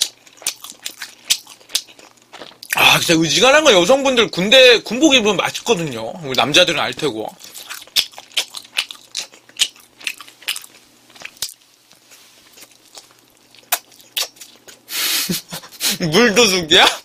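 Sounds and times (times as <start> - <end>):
person chewing food: 0.0 - 2.9, 7.3 - 15.0.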